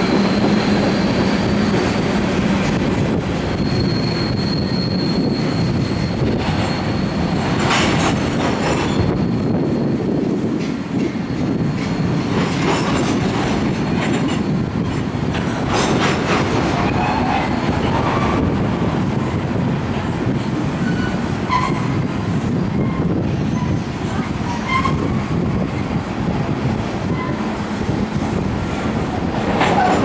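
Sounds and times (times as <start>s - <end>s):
high wheel squeals: 0.0s - 8.0s, 8.6s - 10.5s, 20.7s - 25.4s, 27.0s - 27.6s
steel wheels rumbling on rail: 0.0s - 30.0s.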